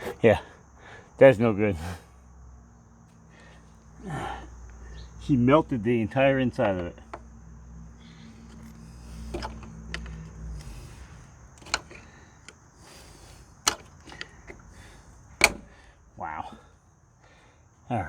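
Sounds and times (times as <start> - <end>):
clicks and knocks of tools: 6.6 - 7.4, 8.2 - 15.8.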